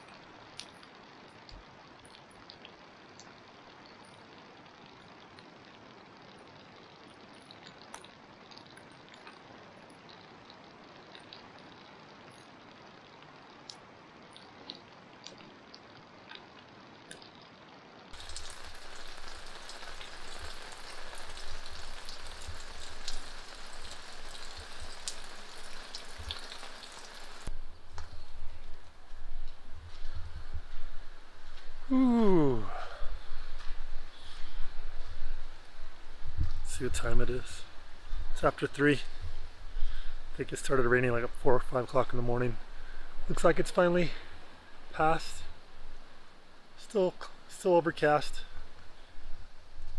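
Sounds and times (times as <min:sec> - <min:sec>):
rain falling: 0:00.0 - 0:48.9
drops ticking: 0:18.2 - 0:28.1.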